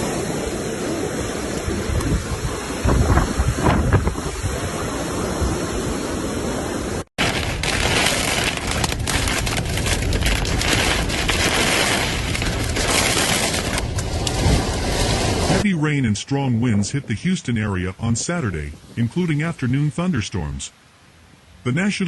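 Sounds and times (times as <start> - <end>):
heavy rain: 0.0 - 16.0
wind: 0.0 - 22.0
low thunder rumbles: 7.2 - 15.6.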